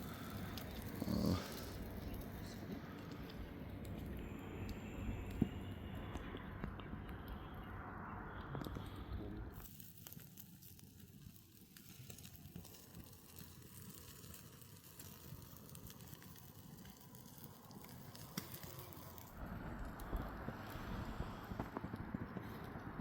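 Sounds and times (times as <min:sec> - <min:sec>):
chicken sizzling on embers: 0:00.0 - 0:05.6, 0:09.6 - 0:23.0
campfire crackling: 0:00.0 - 0:23.0
low rushing noise: 0:01.8 - 0:09.5, 0:19.4 - 0:23.0.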